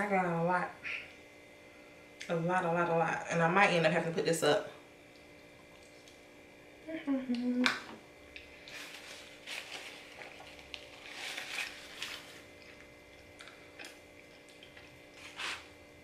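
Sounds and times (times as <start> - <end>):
faint steady hum: 0.0 - 16.0
quiet chewing: 9.8 - 15.7.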